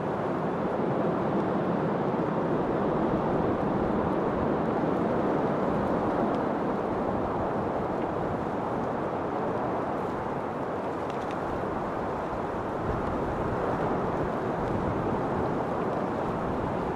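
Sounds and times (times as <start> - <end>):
rushing wind: 0.0 - 16.9.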